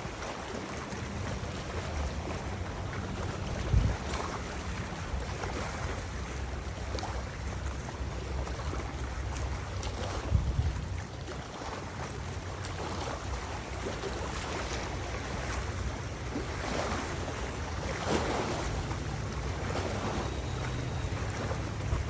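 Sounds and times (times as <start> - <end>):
river water rushing: 0.0 - 22.0
wind gusting against microphone: 1.3 - 5.7, 10.0 - 11.2.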